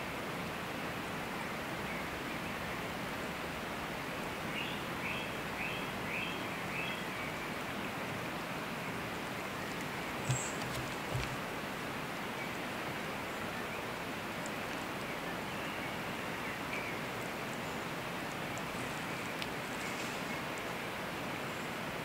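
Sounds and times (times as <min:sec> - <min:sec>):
outdoor background hiss: 0:00.0 - 0:22.0
bird chirping: 0:09.4 - 0:11.4.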